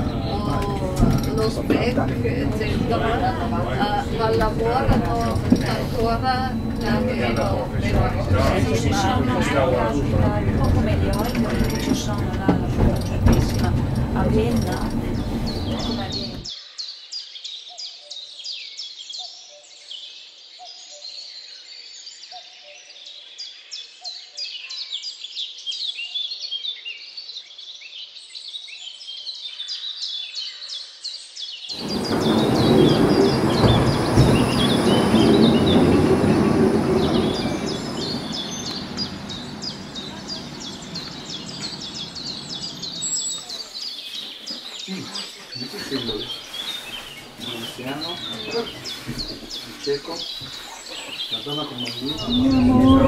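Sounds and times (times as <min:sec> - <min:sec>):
small birds chirping: 0:00.0 - 0:53.0
loud rushing noise: 0:31.8 - 0:43.4.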